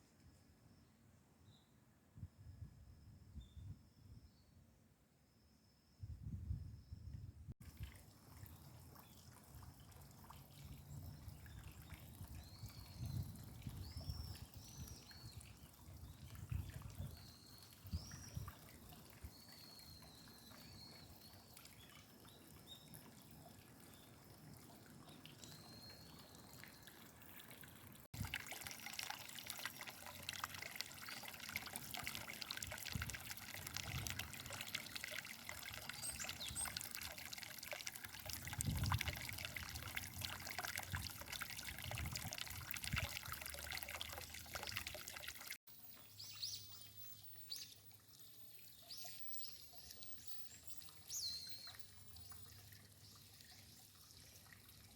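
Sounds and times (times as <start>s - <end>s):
trickling water: 7.6s - 54.9s
small birds chirping: 45.8s - 54.5s.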